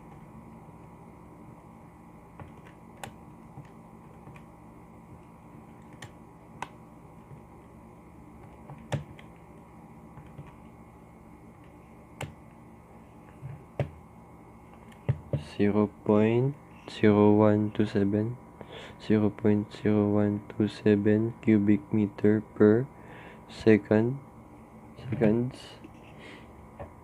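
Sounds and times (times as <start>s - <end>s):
faint room hum: 0.0s - 27.0s.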